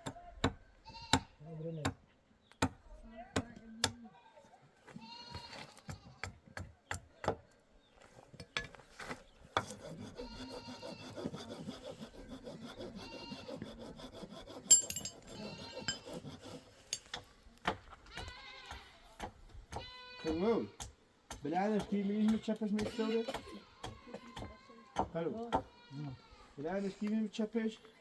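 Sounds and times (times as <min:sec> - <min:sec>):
sheep bleating: 0:05.0 - 0:06.2, 0:10.2 - 0:11.1, 0:15.4 - 0:16.0, 0:18.1 - 0:19.0, 0:19.8 - 0:20.7.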